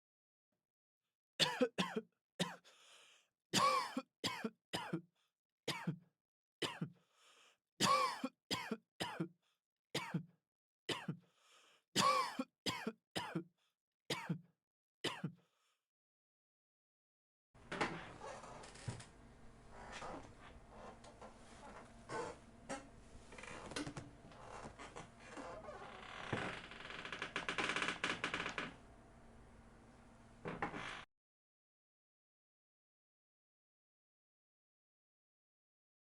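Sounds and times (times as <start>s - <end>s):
person coughing: 1.4s - 2.6s, 3.6s - 5.0s, 5.7s - 6.0s, 6.6s - 6.9s, 7.8s - 9.3s, 10.9s - 11.2s, 12.0s - 13.5s, 14.1s - 14.4s, 15.1s - 15.3s
faint breaths drawn in: 2.6s - 3.3s, 11.3s - 11.8s.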